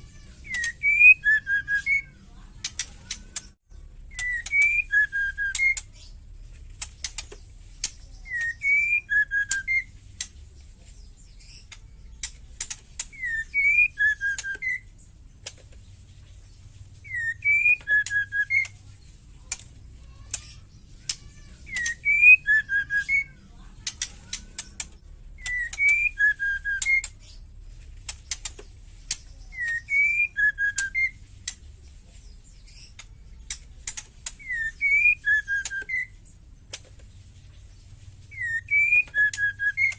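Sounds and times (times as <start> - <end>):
bird whistling: 0.0 - 2.4, 3.0 - 6.2, 7.1 - 10.3, 12.6 - 15.0, 17.0 - 18.8, 20.2 - 27.4, 29.1 - 31.2, 32.6 - 36.3, 38.3 - 39.9.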